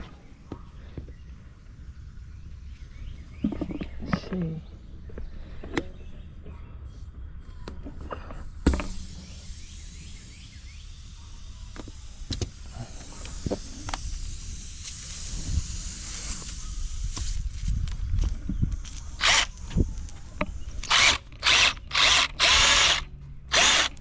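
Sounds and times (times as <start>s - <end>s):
air hissing from tire: 8.4s - 18.1s.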